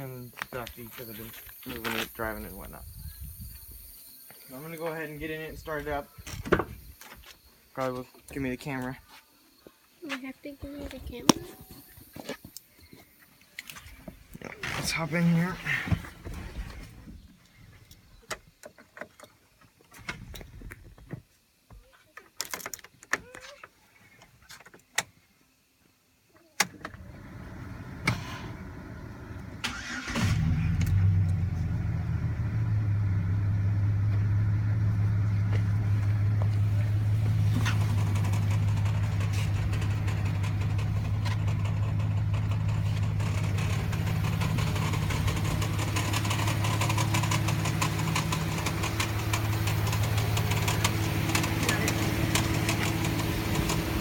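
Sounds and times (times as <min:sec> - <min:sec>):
truck engine idling: 0:27.2 - 0:54.0
starter motor cranking: 0:29.6 - 0:31.0, 0:37.4 - 0:54.0.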